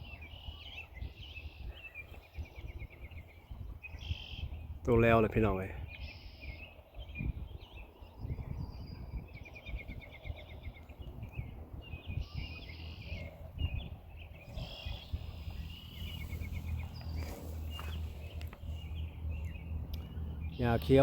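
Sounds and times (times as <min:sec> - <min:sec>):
songbirds singing: 0:00.0 - 0:21.0
low rumble: 0:13.2 - 0:20.6
rustling: 0:15.7 - 0:18.9.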